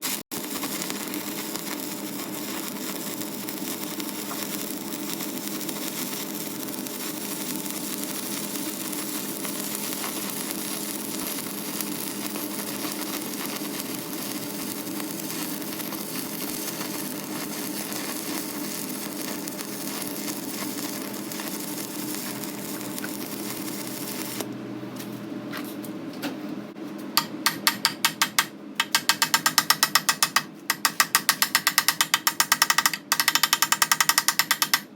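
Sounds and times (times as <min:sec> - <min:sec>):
welding arc crackling sizzle: 0:00.0 - 0:24.6, 0:27.2 - 0:34.9
sharp taps: 0:27.2 - 0:34.9.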